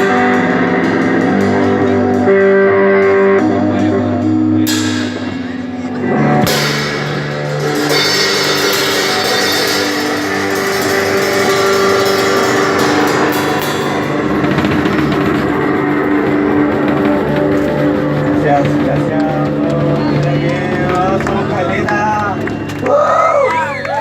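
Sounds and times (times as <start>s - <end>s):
guitar chords: 0.0s - 22.9s
cymbals ringing: 4.3s - 19.2s
drumming: 4.6s - 24.0s.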